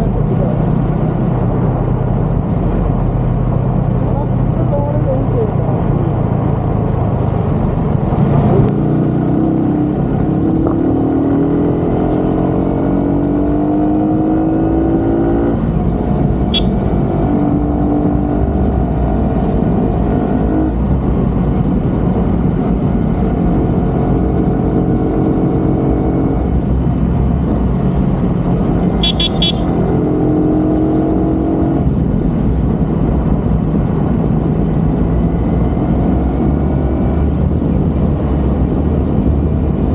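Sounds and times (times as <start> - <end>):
road noise rumble: 0.0 - 39.9
vehicle engine running: 15.6 - 20.1, 20.8 - 30.0
short high beeps: 16.6 - 16.8, 29.0 - 29.7.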